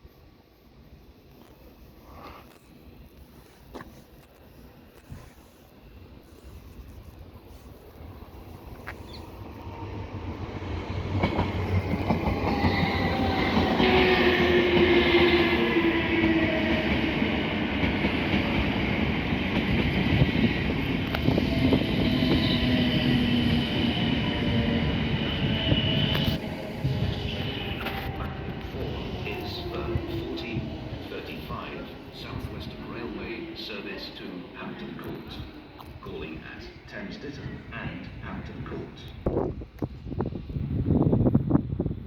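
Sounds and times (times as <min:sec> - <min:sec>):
train whining and squealing: 0:03.4 - 0:41.9
train wheel clatter: 0:11.0 - 0:15.0.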